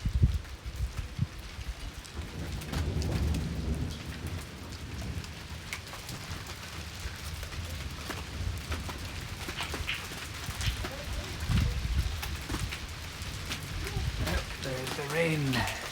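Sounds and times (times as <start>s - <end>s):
steady rain: 0.0s - 15.9s
raindrops ticking close by: 0.2s - 15.9s.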